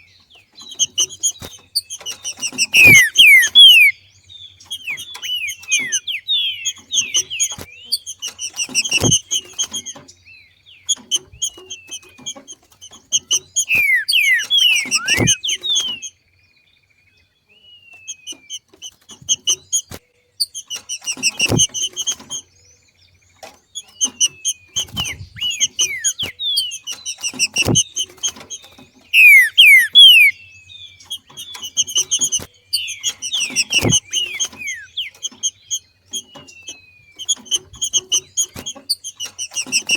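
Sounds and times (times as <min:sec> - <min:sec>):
bird calling sharp chips: 0:00.0 - 0:16.2, 0:17.7 - 0:39.9
dull thumps: 0:06.8 - 0:10.0, 0:21.0 - 0:22.4, 0:24.0 - 0:30.3, 0:31.1 - 0:35.5.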